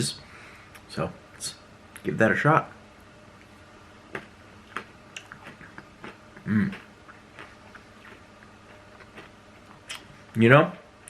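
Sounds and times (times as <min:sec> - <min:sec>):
chewing crunchy food: 0:04.1 - 0:10.2
person humming: 0:06.4 - 0:06.8.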